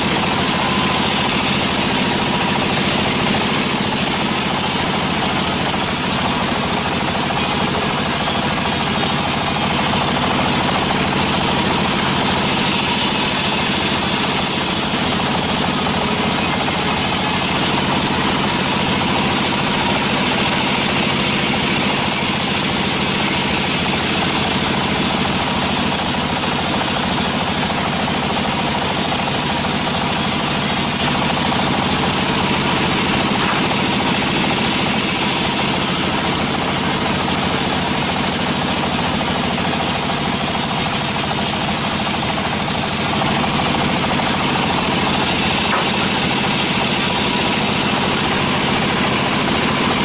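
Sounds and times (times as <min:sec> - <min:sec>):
sawmill machinery running: 0:00.0 - 0:50.0.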